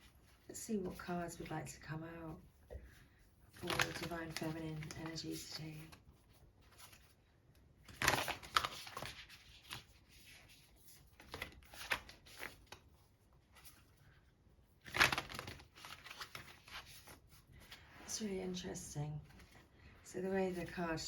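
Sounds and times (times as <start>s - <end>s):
cards shuffling: 7.9s - 12.9s, 14.8s - 17.2s.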